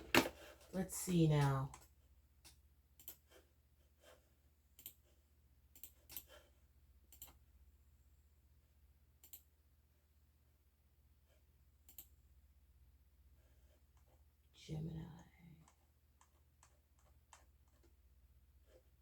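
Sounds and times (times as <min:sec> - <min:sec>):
faint clicks and taps: 0:00.0 - 0:06.5, 0:15.2 - 0:19.0.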